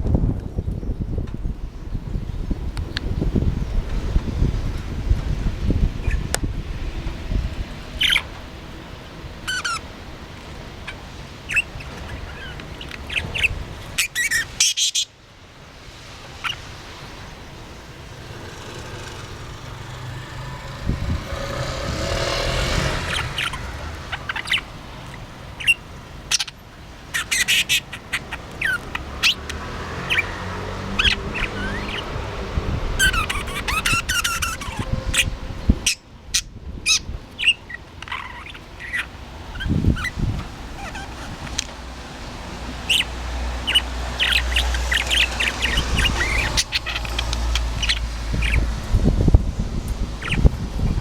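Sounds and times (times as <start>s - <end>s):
budgerigar chirping: 8.0s - 8.3s, 9.5s - 9.8s, 10.8s - 15.1s, 21.4s - 24.7s, 25.6s - 32.1s, 33.0s - 40.2s, 40.8s - 41.6s, 42.8s - 48.7s, 50.2s - 50.5s.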